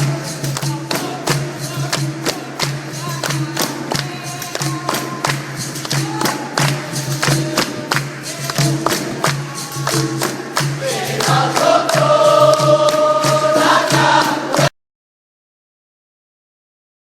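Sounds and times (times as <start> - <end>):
tambourine strikes: 0.0 - 14.7
chorus of voices singing: 6.0 - 14.7.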